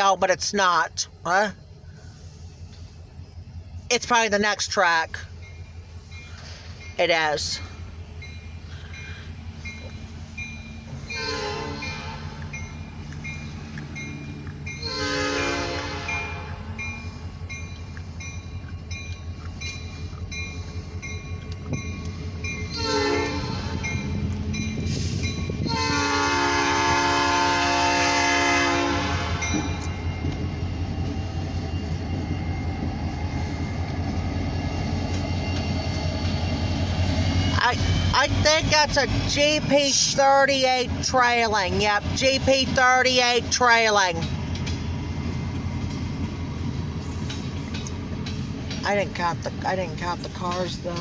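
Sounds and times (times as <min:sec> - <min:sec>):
locomotive engine rumble: 0:00.0 - 0:51.0
train wheels on rails: 0:00.0 - 0:51.0
crossing bell dinging: 0:04.0 - 0:25.8, 0:28.0 - 0:30.5
locomotive horn blast: 0:11.0 - 0:12.5, 0:14.8 - 0:16.8, 0:22.7 - 0:24.0, 0:25.0 - 0:30.0.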